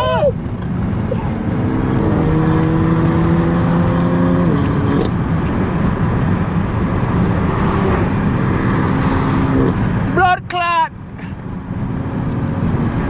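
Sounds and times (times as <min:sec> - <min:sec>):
car engine pulling: 0:00.0 - 0:10.2
road and wind noise: 0:00.0 - 0:13.0.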